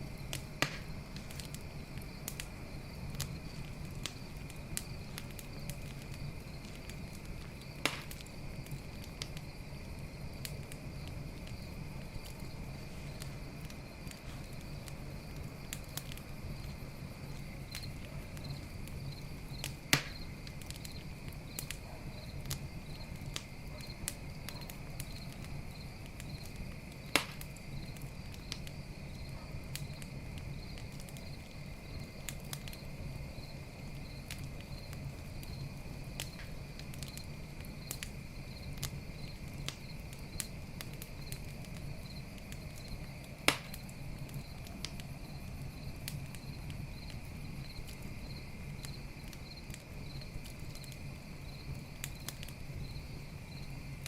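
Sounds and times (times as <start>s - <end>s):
campfire crackling: 0.0s - 54.0s
crickets chirping: 0.0s - 54.0s
sharp loud pops of fire: 0.3s - 2.5s, 7.7s - 9.3s, 17.7s - 20.9s, 27.0s - 27.6s, 43.4s - 45.0s.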